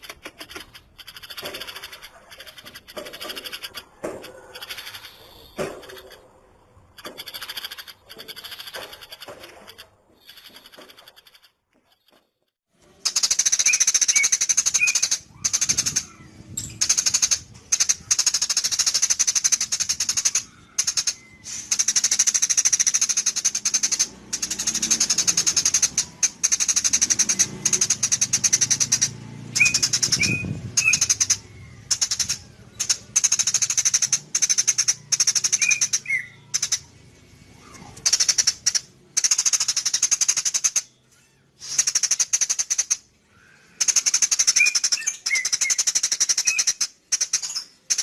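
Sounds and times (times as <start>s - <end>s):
sparrow chattering: 0.0s - 12.1s, 13.0s - 48.0s.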